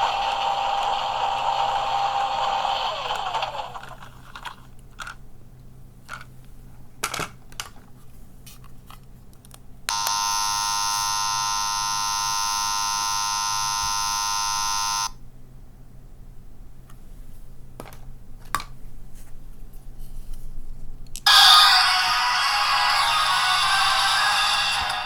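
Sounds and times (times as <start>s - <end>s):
loud steady buzzer tone: 9.9s - 15.2s.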